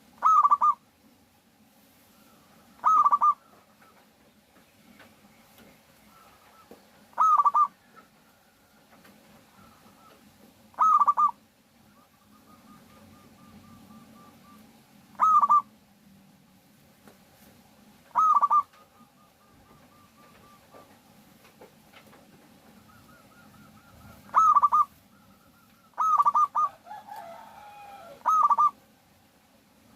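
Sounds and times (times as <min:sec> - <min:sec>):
dove cooing: 0:00.0 - 0:00.8, 0:02.2 - 0:04.1, 0:06.0 - 0:15.8, 0:18.0 - 0:21.0, 0:22.5 - 0:28.9.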